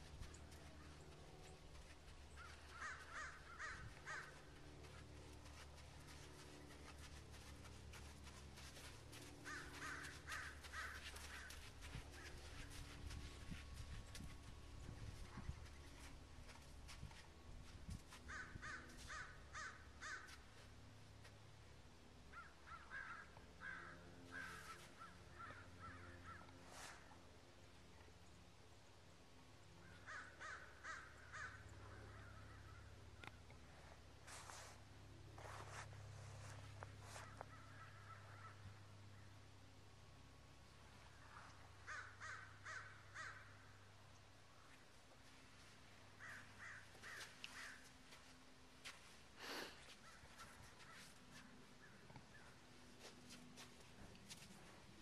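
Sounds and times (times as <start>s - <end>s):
low steady hum: 0.0s - 55.0s
faint bird calls: 0.2s - 14.3s, 18.1s - 20.5s, 22.3s - 27.3s, 29.8s - 34.0s, 36.4s - 39.4s, 41.0s - 43.8s, 46.2s - 54.8s.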